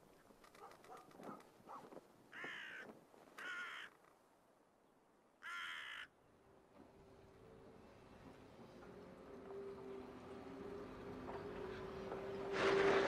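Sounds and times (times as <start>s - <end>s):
crow cawing: 2.3s - 4.0s, 5.4s - 6.1s.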